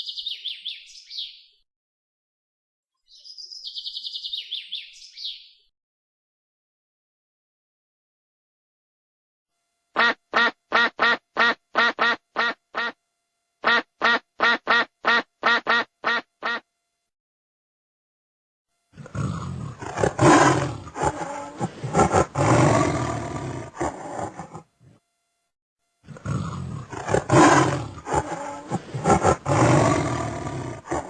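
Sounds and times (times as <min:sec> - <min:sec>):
duck quacking: 0:10.0 - 0:13.0, 0:13.6 - 0:16.6
big cat roaring: 0:19.0 - 0:24.7, 0:26.0 - 0:31.0.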